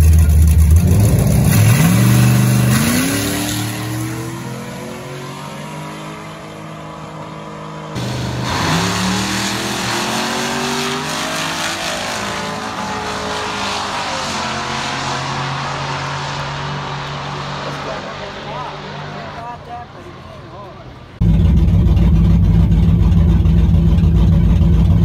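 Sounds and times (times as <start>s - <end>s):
drag racing car engine revving: 0.0s - 25.0s
engine accelerating hard: 0.0s - 25.0s.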